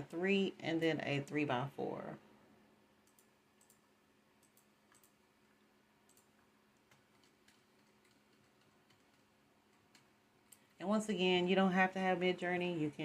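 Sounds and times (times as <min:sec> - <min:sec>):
computer mouse clicks: 0:03.0 - 0:05.2, 0:06.0 - 0:10.8.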